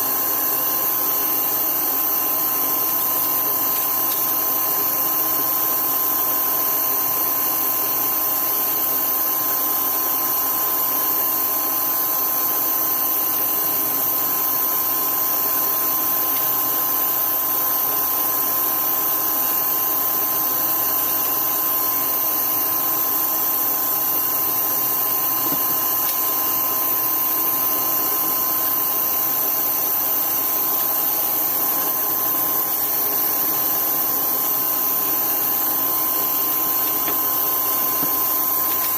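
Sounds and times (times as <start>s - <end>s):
power tool motor whine: 20.9s - 38.9s.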